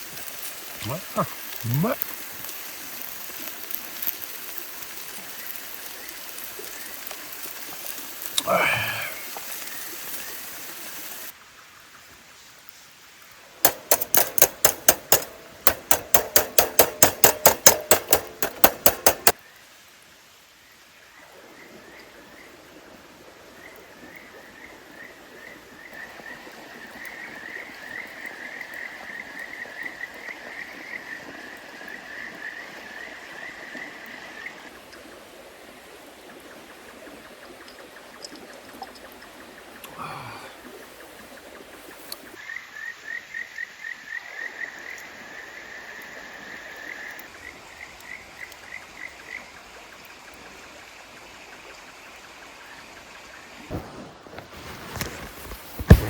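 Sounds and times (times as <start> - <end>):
stream flowing: 0.0 - 11.6
loud rapid clicks: 13.7 - 19.4.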